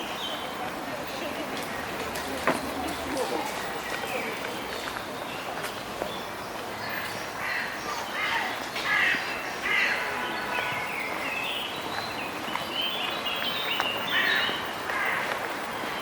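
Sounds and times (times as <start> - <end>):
harsh bird calls: 6.8 - 15.3.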